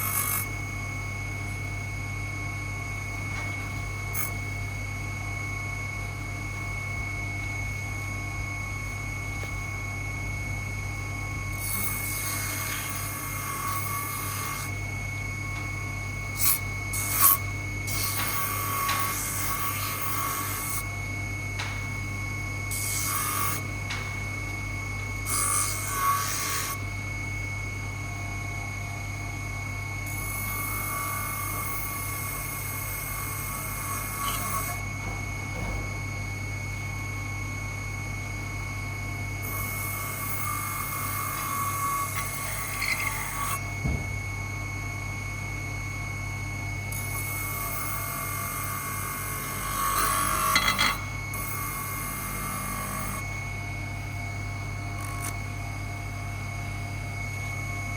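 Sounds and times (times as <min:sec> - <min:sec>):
motor hum: 0:00.0 - 0:57.9
filing or sanding: 0:22.7 - 0:23.6, 0:25.3 - 0:26.8.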